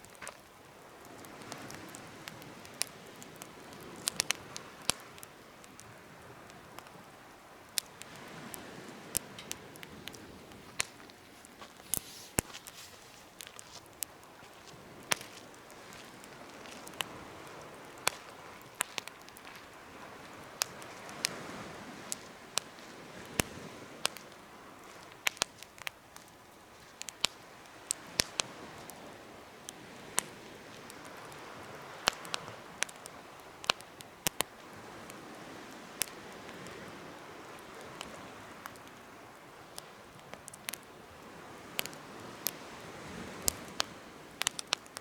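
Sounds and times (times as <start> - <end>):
campfire popping and crackling: 0.0 - 45.0
fire hissing: 0.6 - 21.1.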